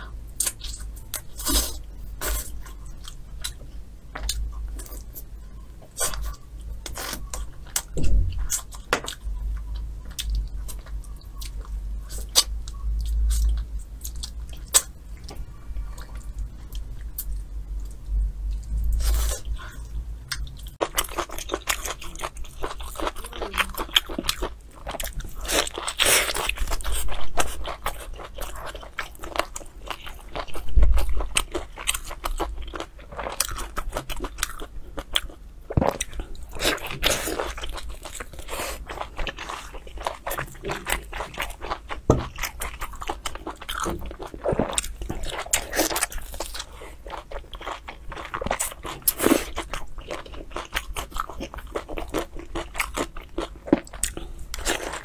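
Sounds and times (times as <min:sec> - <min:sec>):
close chewing and gnawing: 0:00.0 - 0:55.0.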